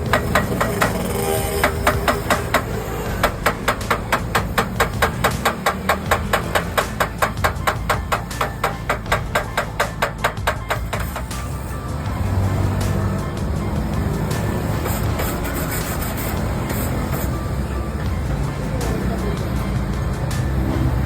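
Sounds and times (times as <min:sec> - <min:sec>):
rapid hammer taps: 0:00.0 - 0:11.8.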